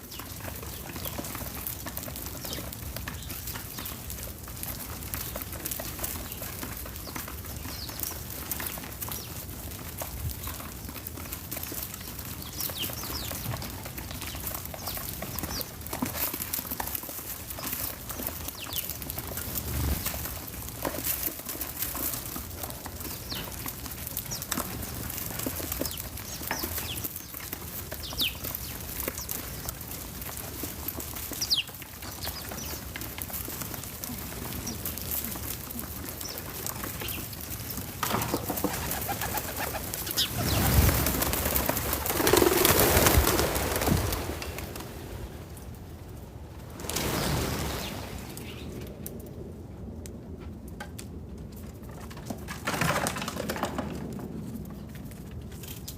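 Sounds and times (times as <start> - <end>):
birds chirping: 0.0 - 4.3, 4.9 - 9.6, 10.2 - 16.1, 17.5 - 19.9, 22.9 - 30.3, 30.9 - 43.8.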